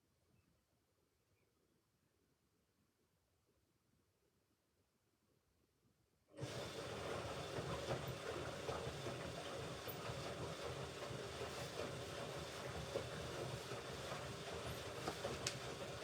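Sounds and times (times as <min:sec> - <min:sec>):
washing machine running: 0:06.4 - 0:16.0.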